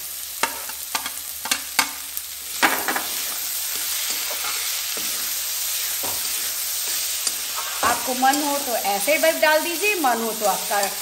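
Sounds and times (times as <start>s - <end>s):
vegetables sizzling in pan: 0.0s - 11.0s
spatula knocking and scraping pan: 2.6s - 5.4s, 6.0s - 8.6s.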